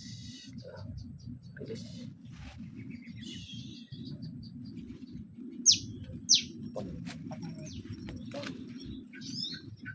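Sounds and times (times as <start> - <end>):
faint bird chirps: 0.0 - 6.8
steady low rumble: 0.0 - 9.9
sharp bird chirps: 2.6 - 6.6.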